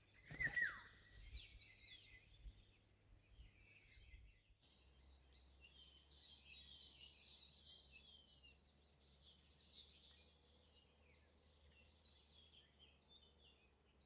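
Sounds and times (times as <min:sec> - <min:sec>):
faint songbirds twittering: 0:00.0 - 0:14.0.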